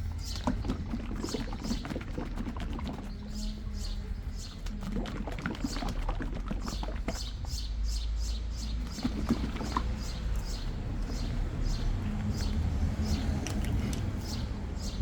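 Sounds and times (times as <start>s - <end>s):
bird chirping: 0.0s - 2.2s, 2.9s - 4.7s, 6.6s - 13.4s, 14.2s - 15.0s.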